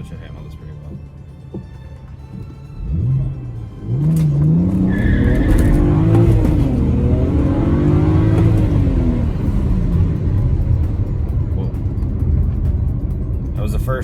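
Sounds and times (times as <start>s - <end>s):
car engine revving hard: 2.8s - 11.6s
tyres spinning and squealing: 4.2s - 8.8s.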